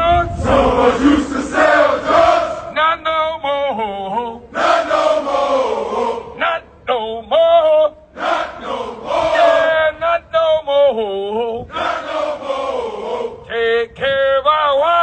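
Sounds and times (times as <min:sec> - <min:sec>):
man leading a chant: 0:00.0 - 0:00.4, 0:02.7 - 0:04.4, 0:06.3 - 0:08.1, 0:09.4 - 0:11.7
group of men chanting in unison: 0:00.3 - 0:02.8, 0:04.4 - 0:06.7, 0:08.1 - 0:10.0, 0:11.6 - 0:13.6.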